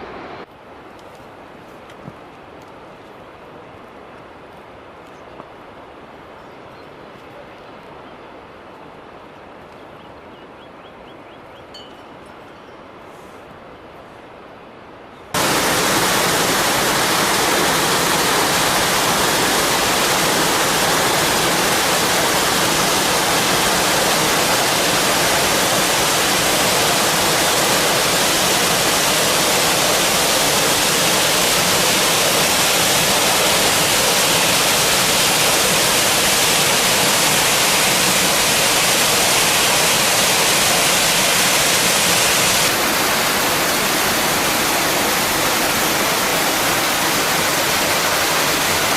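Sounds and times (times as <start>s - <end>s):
waterfall rushing: 15.4s - 48.9s.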